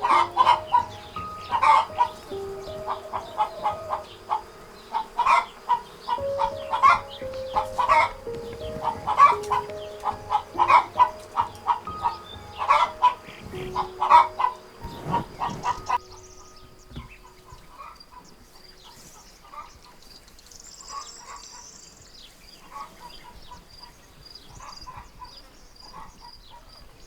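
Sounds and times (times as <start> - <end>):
chickens clucking: 0.0 - 19.7
soft background music: 0.0 - 20.4.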